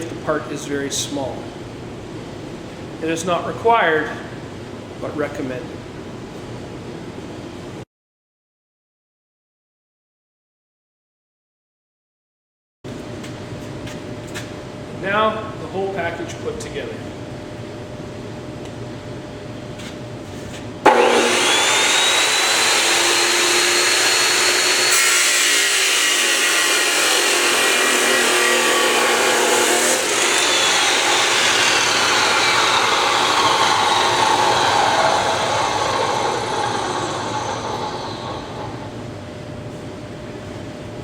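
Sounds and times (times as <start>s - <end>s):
chop saw whine: 20.8s - 39.0s
saw grinding metal: 20.9s - 38.9s.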